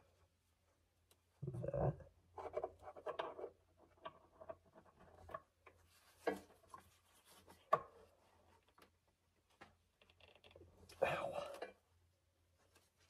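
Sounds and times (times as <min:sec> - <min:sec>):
light rubbing and rustling: 0:02.4 - 0:08.8.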